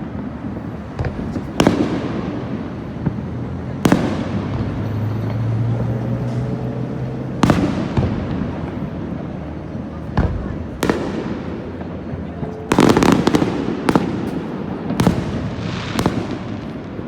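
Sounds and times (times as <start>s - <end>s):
fireworks bursting with sharp bangs: 0.0s - 17.0s
faint firework pops: 0.4s - 2.4s, 7.4s - 8.8s, 10.1s - 17.0s.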